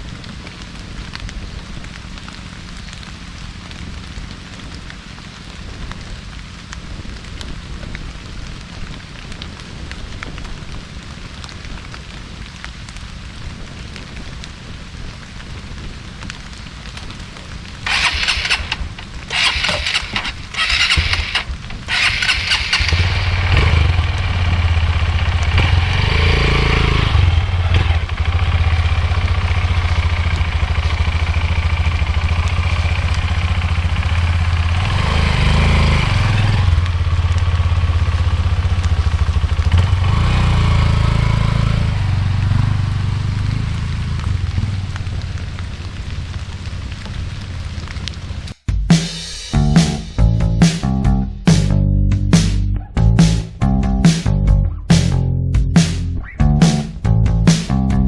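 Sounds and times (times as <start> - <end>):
motorcycle engine cranking: 16.9 - 36.6
motorcycle engine idling: 16.9 - 47.5.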